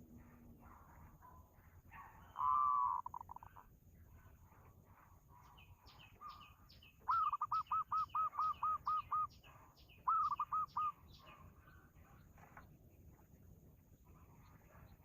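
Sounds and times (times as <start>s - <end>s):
bird calling repeated clear notes: 2.0s - 3.7s, 5.6s - 11.4s.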